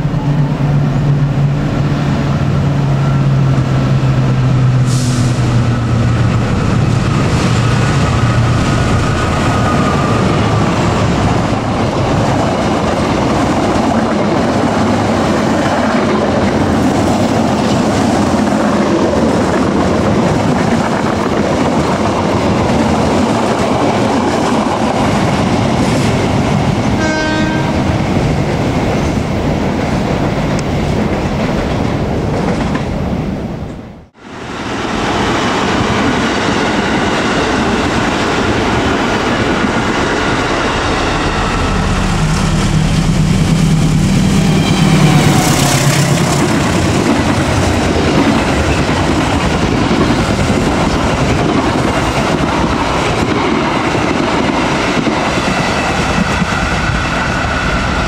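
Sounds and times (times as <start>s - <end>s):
train horn: 27.0s - 28.0s
diesel locomotive engine running: 33.9s - 54.6s.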